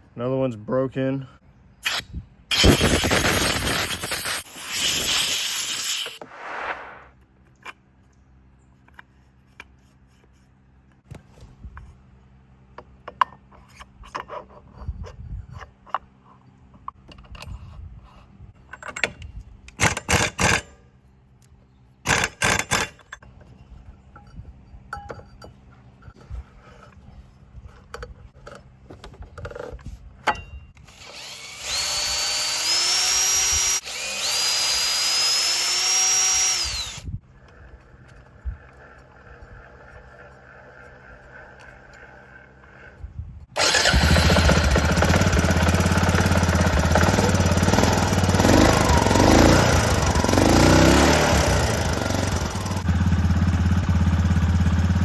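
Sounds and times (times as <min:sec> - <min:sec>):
short loud bursts: 0:01.8 - 0:07.2, 0:43.6 - 0:45.5
tools and parts clanking: 0:18.6 - 0:19.7, 0:22.6 - 0:30.8
power tool whining: 0:30.8 - 0:38.2, 0:43.5 - 0:55.0.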